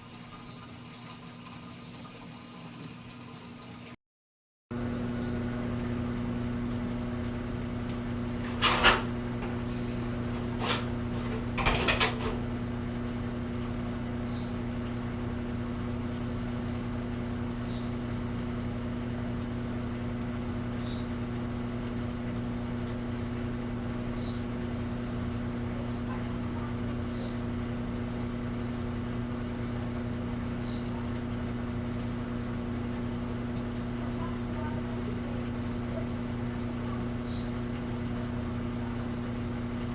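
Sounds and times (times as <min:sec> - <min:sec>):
laundry machine humming: 0:00.0 - 0:04.0, 0:04.7 - 0:39.9.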